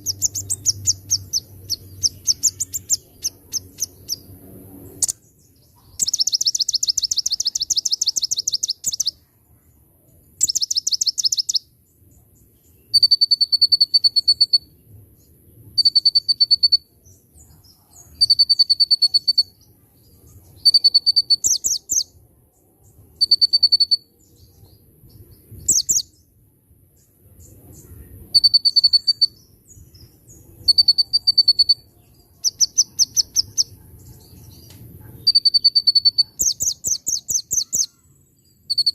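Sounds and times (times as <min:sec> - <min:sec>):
songbird trilling: 0:00.0 - 0:04.3, 0:04.9 - 0:09.2, 0:10.4 - 0:11.6, 0:18.0 - 0:19.6, 0:20.4 - 0:22.1, 0:23.2 - 0:24.4, 0:25.6 - 0:26.1, 0:27.4 - 0:38.9.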